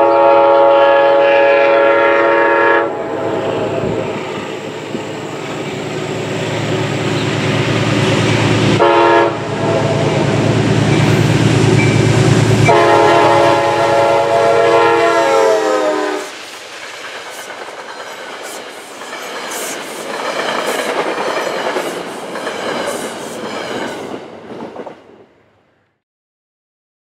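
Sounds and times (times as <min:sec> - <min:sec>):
train horn: 0:00.0 - 0:04.0, 0:08.8 - 0:10.3, 0:11.8 - 0:16.4
diesel locomotive engine running: 0:00.0 - 0:23.9
train wheels clicking over rail joints: 0:16.2 - 0:25.1.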